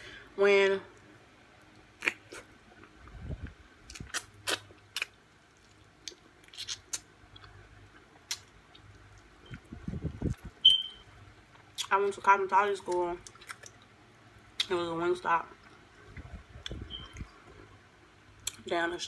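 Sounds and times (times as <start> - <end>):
wet chewing clicks and smacks: 1.9 - 3.0, 3.9 - 10.9, 12.9 - 13.9.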